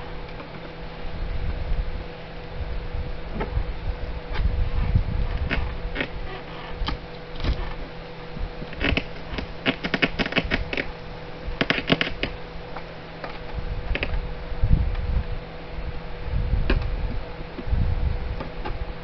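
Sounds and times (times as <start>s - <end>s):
window frame crackling and snapping: 5.4s - 7.9s, 8.7s - 10.9s, 11.6s - 12.4s.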